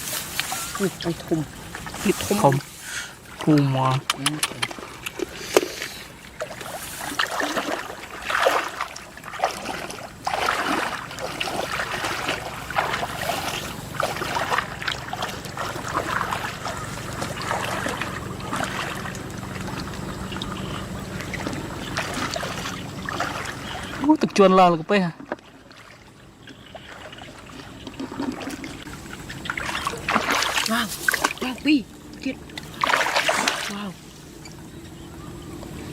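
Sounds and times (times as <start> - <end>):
shallow water splashing: 0.0 - 35.9.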